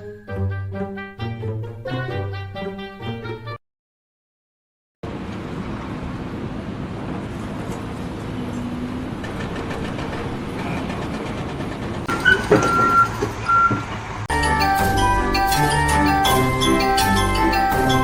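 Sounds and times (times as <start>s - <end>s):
large vehicle running: 5.0s - 18.0s
loud knocks: 9.2s - 14.0s.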